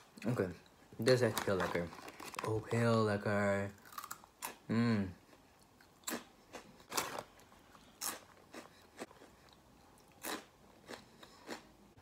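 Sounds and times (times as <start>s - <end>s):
crunchy snack being chewed: 3.8s - 4.6s, 6.0s - 11.7s.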